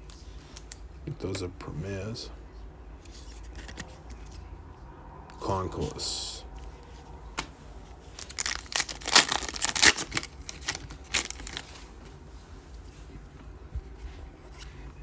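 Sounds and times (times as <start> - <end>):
card pack wrapper tearing and crinkling: 8.2 - 11.8.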